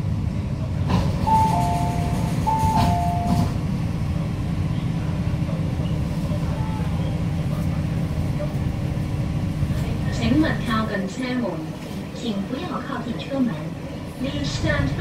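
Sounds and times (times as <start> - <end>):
low rumble of train: 0.0 - 15.0
train door clicks: 0.9 - 3.6.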